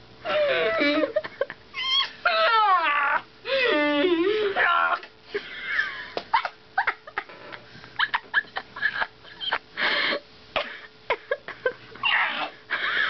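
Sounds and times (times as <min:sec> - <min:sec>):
person squeaking and whimpering: 0:00.2 - 0:05.1, 0:12.0 - 0:12.6.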